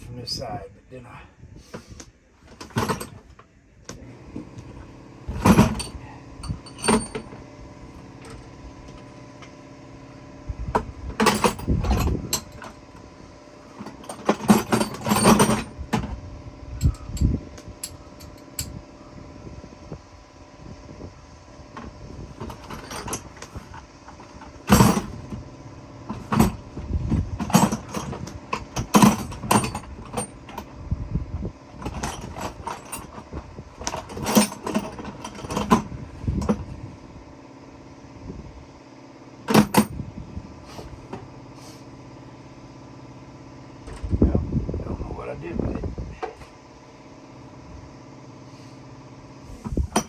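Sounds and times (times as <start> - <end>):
fan hum: 0.0 - 50.0
hand tools clattering: 5.3 - 7.4, 11.2 - 12.8, 13.7 - 15.7, 16.8 - 18.8, 27.4 - 30.7, 33.8 - 35.9.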